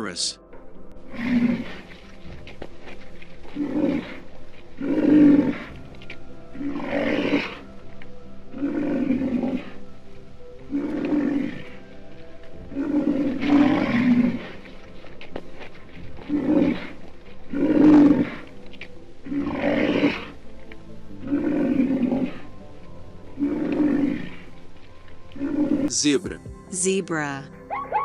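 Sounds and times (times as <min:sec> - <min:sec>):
background music: 0:00.0 - 0:28.0
large animal roaring: 0:01.1 - 0:02.0, 0:03.4 - 0:05.9, 0:06.5 - 0:07.7, 0:08.5 - 0:09.8, 0:10.6 - 0:15.1, 0:16.1 - 0:18.6, 0:19.2 - 0:20.5, 0:21.2 - 0:22.6, 0:23.4 - 0:24.6, 0:25.3 - 0:26.0.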